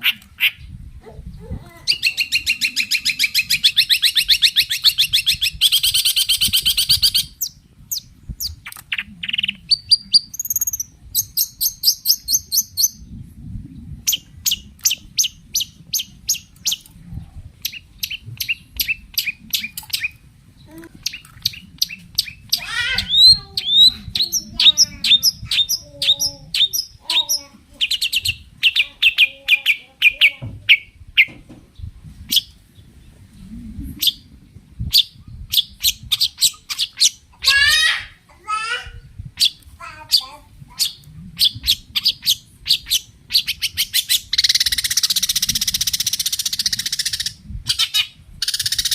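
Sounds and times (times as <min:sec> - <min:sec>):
bird singing harsh chatter: 0:01.8 - 0:13.2, 0:14.1 - 0:16.9, 0:17.6 - 0:32.6, 0:34.9 - 0:38.0, 0:39.4 - 0:48.9.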